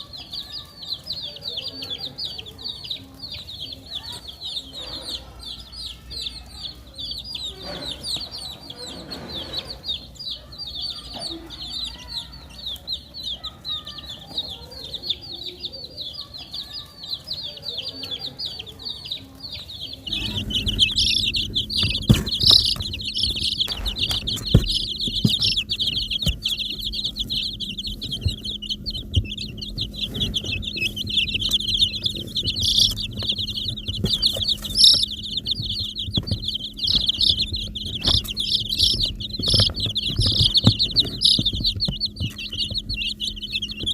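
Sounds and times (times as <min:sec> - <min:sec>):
baby chicks peeping: 0:00.0 - 0:43.9
steady low hum: 0:17.8 - 0:43.9.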